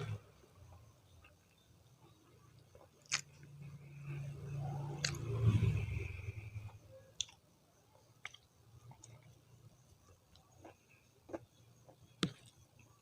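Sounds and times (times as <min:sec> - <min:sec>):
wet chewing: 0:02.6 - 0:03.5, 0:05.0 - 0:05.3.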